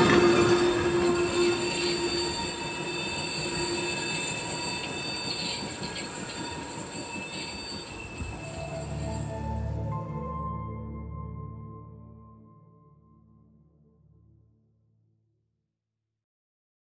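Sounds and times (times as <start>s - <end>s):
high-pitched wheel flange squeal: 0.0s - 10.0s
train rolling on rails: 0.0s - 10.2s.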